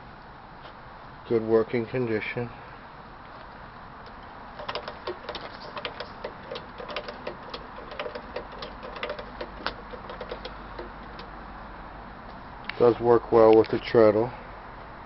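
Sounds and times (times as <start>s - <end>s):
treadle sewing machine clattering: 4.6s - 11.0s.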